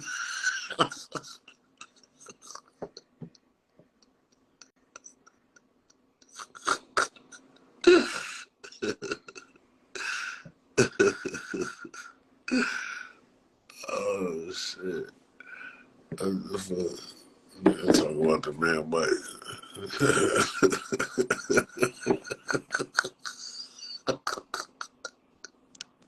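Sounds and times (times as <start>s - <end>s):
faint steady hum: 0.0s - 26.0s
wordless voice bursts: 13.8s - 25.1s.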